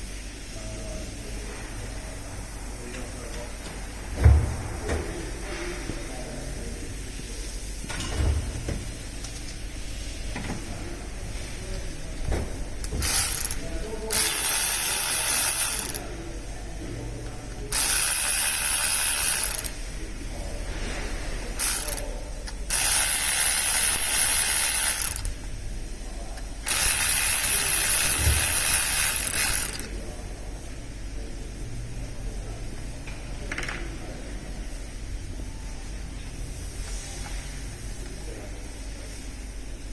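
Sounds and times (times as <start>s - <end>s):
ratchet wrench ratcheting: 12.8s - 16.1s, 17.7s - 19.9s, 21.5s - 25.5s, 26.4s - 30.0s.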